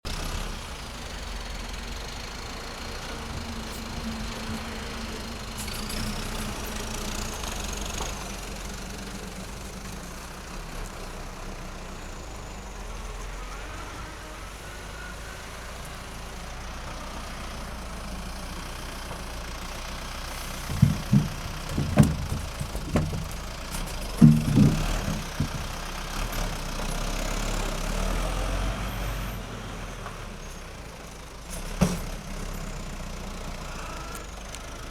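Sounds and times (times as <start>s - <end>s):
loud thumps: 20.6s - 25.8s.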